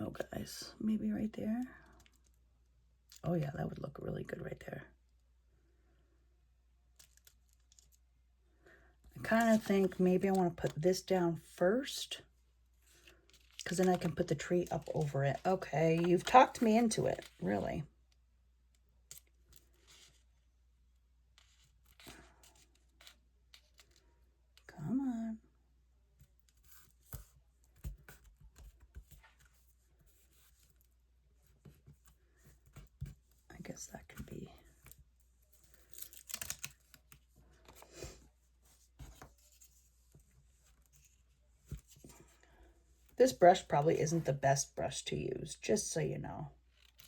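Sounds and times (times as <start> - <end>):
small paper clicks: 35.6 - 37.8.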